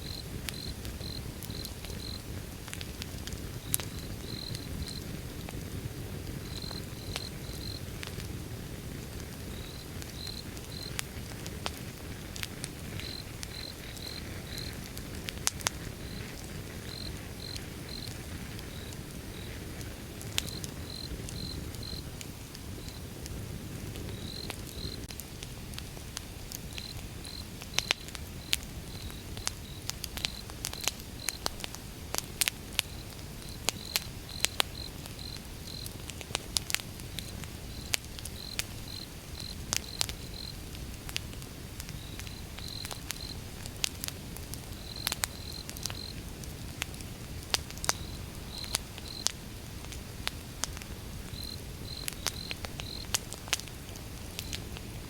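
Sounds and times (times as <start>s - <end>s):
crickets chirping: 0.0s - 2.3s, 3.9s - 5.2s, 6.4s - 7.9s, 9.4s - 11.0s, 13.0s - 14.8s, 15.8s - 22.2s, 24.1s - 25.1s, 26.7s - 31.5s, 32.8s - 36.0s, 37.2s - 40.8s, 41.9s - 43.5s, 44.7s - 46.2s, 47.9s - 49.7s, 50.4s - 53.2s
wood fire crackling: 0.0s - 55.0s.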